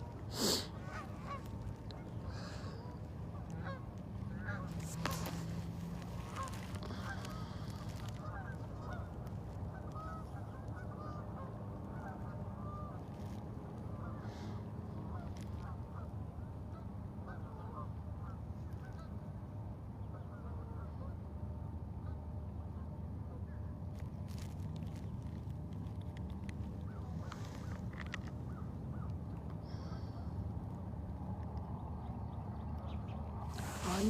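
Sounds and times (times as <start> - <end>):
flock of birds honking: 0.0 - 16.1, 33.5 - 34.0
steady low rumble: 0.0 - 34.0.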